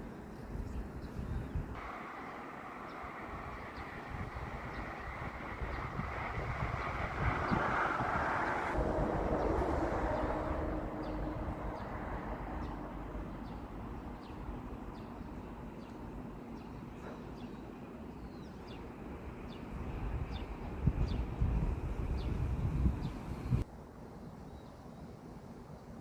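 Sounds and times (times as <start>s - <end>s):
wind rumble on microphone: 0.4s - 1.8s, 3.1s - 15.5s, 18.4s - 23.7s.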